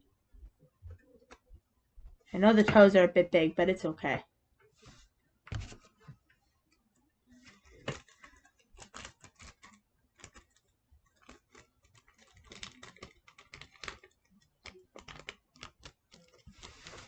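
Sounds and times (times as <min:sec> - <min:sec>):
tape crinkling and clicking: 0:07.4 - 0:17.0.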